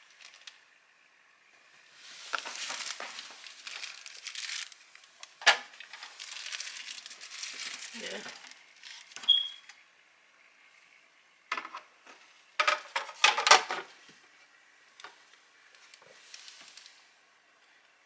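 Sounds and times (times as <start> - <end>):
handling clatters and rustles: 2.2 - 9.1, 12.6 - 14.0.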